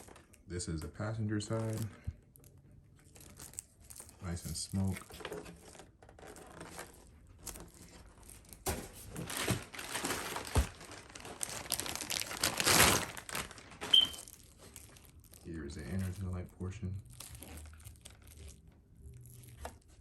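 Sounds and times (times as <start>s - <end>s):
plastic packaging crinkling: 0.0s - 20.0s
short high squeak: 13.9s - 14.2s.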